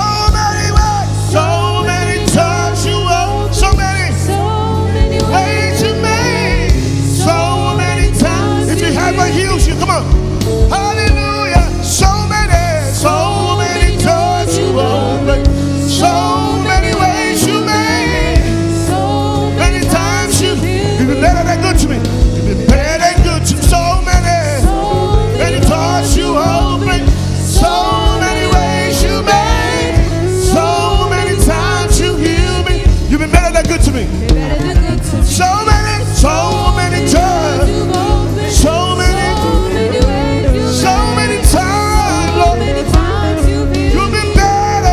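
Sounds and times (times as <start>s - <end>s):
steady drum beat: 0.0s - 44.9s
worship band music: 0.0s - 44.9s.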